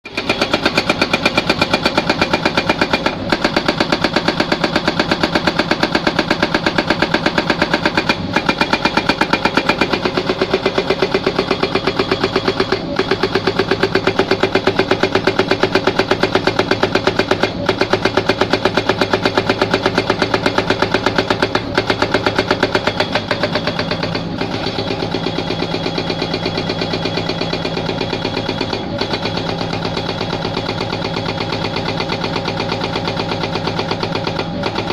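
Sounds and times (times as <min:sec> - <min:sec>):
diesel engine running: 0:00.0 - 0:34.9
hydraulic rock breaker hammering: 0:00.1 - 0:34.9.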